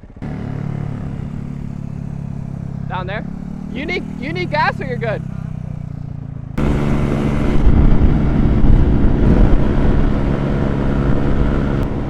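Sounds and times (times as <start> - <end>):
dirt bike engine running: 0.0 - 12.0
wind on microphone: 6.6 - 12.0.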